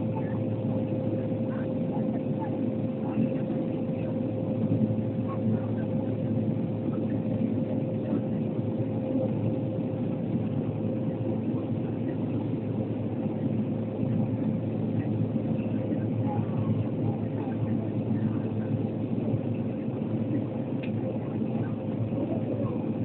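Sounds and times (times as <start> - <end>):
airliner engine and propeller drone: 0.0 - 23.0.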